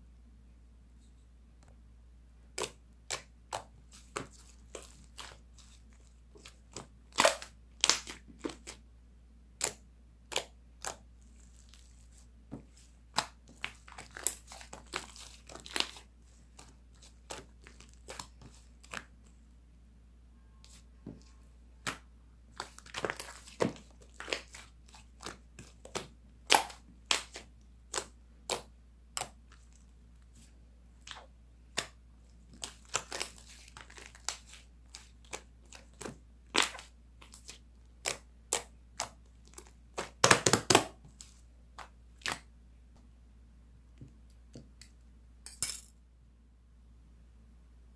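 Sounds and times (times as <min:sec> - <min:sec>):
slime squished by hand: 0:09.6 - 0:19.2, 0:20.6 - 0:29.9, 0:31.0 - 0:42.5.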